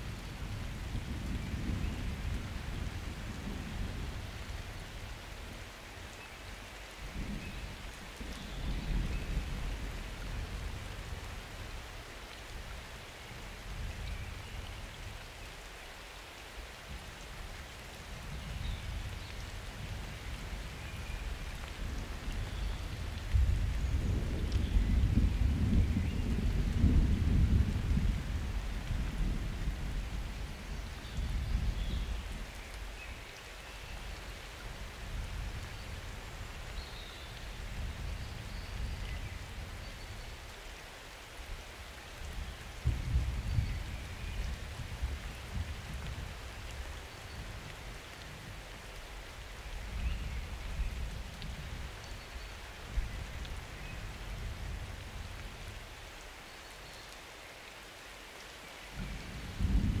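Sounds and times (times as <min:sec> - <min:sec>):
steady rain falling: 0:00.0 - 1:00.0
thunder rolling: 0:59.0 - 1:00.0.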